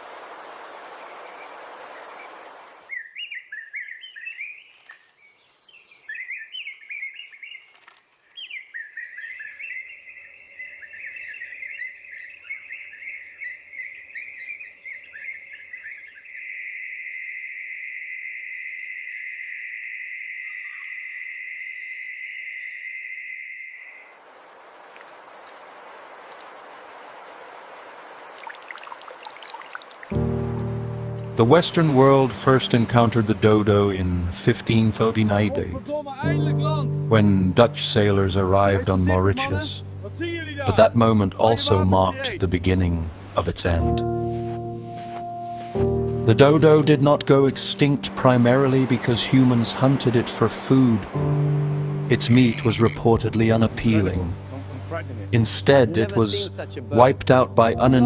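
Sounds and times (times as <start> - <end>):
insect buzz: 0.0 - 3.0, 7.4 - 31.4
birds chirping in rapid trills: 0.7 - 7.7, 8.3 - 16.6.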